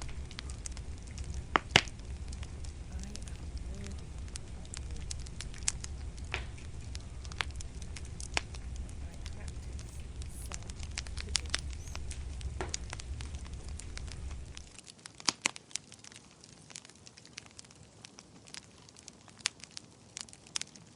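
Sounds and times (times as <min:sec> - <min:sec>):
low rumble: 0:00.0 - 0:14.8
wood fire crackling: 0:00.0 - 0:20.9.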